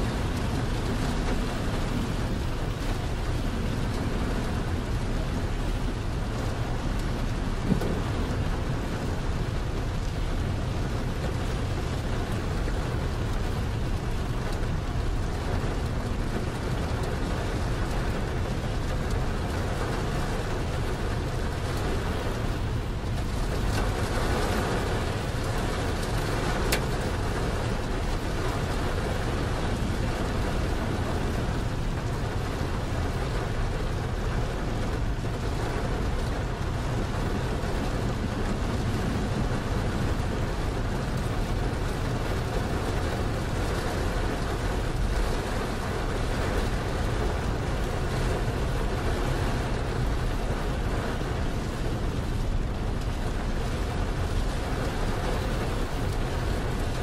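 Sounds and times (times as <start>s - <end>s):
rain on truck windshield: 0.0s - 57.0s
tyres on wet highway: 0.0s - 57.0s.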